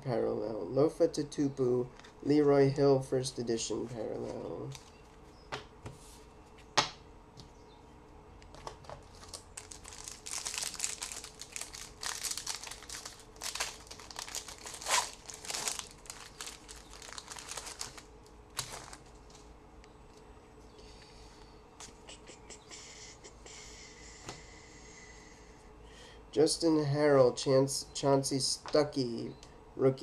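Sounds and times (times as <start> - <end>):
foil wrapper crinkling: 9.1 - 19.5.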